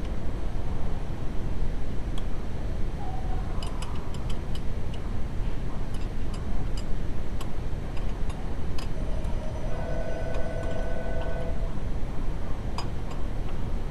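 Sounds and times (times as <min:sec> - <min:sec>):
steady tone: 0:09.0 - 0:12.1.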